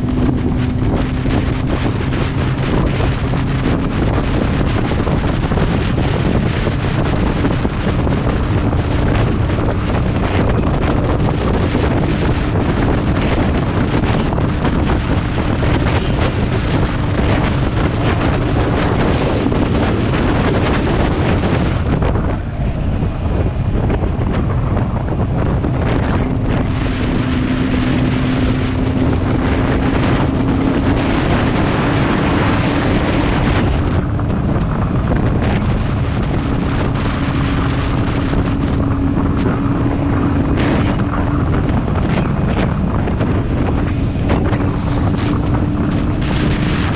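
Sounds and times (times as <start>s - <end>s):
motorcycle engine drone: 0.0s - 46.9s
wind rushing on microphone: 0.0s - 46.9s.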